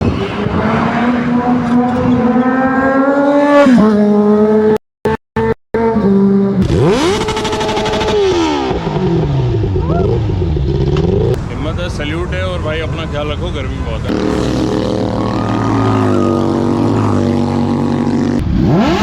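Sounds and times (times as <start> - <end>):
motorcycle engine accelerating: 0.0 - 4.8, 5.4 - 11.4, 14.1 - 19.0.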